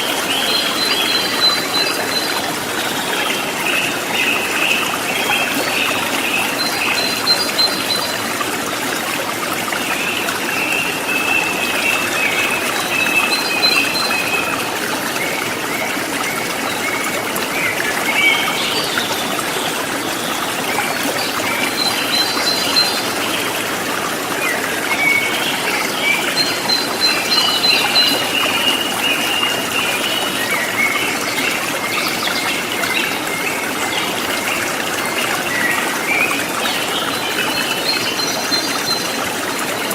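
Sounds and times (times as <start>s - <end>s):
river water over rocks: 0.0s - 39.9s.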